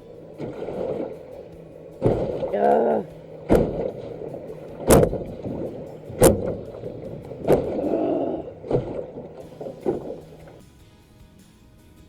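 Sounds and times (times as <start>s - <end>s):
low murky noise: 0.0s - 10.8s
knocks on aluminium boat hull: 3.5s - 8.0s.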